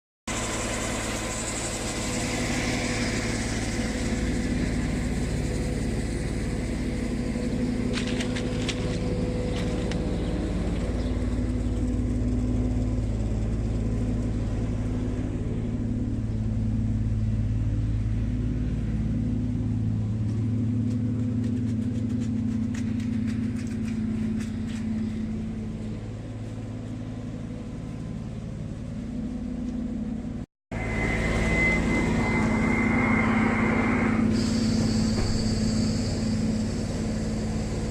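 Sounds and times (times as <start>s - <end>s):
drain pump: 30.8s - 37.9s.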